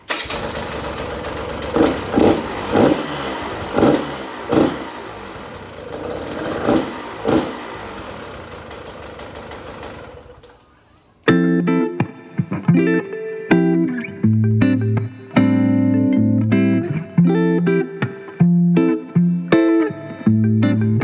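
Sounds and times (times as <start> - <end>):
engine revving: 0.0 - 10.6
two-stroke engine idling: 0.1 - 10.6.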